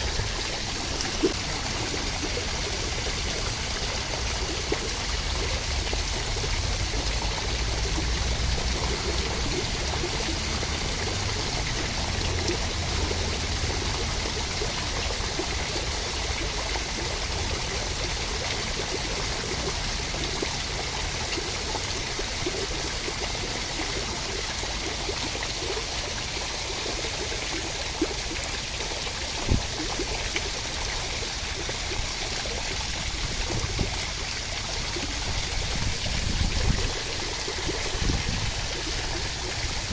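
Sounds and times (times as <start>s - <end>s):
rushing water hiss: 0.0s - 39.9s.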